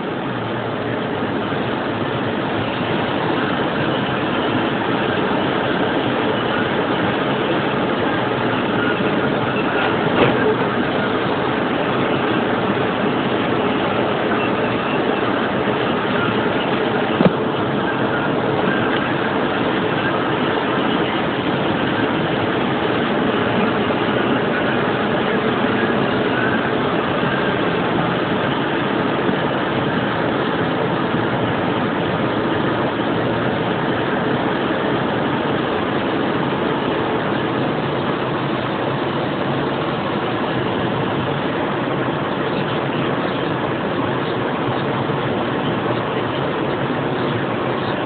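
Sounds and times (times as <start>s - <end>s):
car running: 0.0s - 48.0s.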